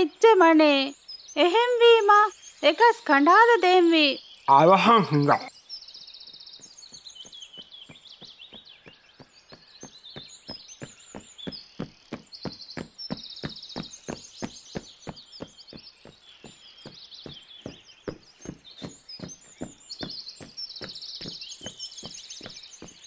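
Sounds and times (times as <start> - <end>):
birds chirping: 0.0 - 23.0
cartoon running footsteps: 6.6 - 23.0.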